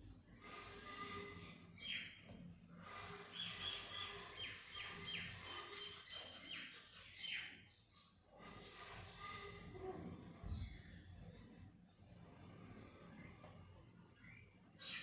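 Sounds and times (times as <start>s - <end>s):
birds chirping: 0.3s - 15.0s.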